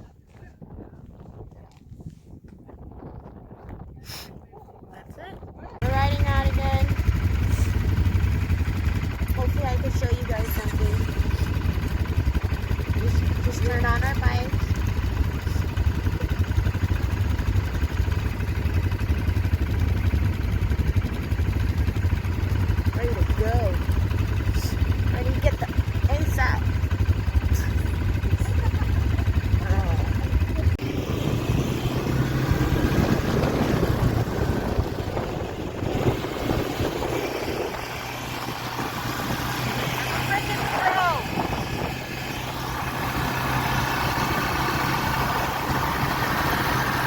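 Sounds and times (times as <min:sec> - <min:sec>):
quad bike engine idling: 0:05.8 - 0:47.0.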